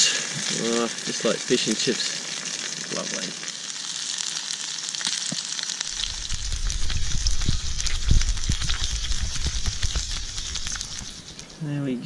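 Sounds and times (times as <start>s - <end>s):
fish and chips sizzling in oil: 0.0s - 11.8s
low rumble: 6.0s - 11.4s.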